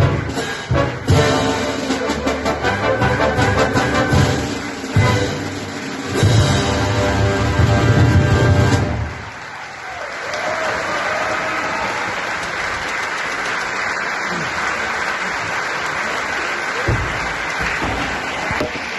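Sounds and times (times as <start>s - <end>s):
audience applauding: 3.4s - 6.2s, 8.4s - 18.9s.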